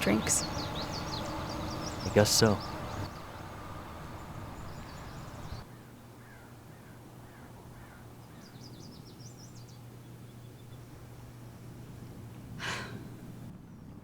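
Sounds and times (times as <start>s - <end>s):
high bird chirps: 0.0s - 5.6s
birds calling: 0.0s - 13.6s
low steady hum: 0.0s - 14.0s.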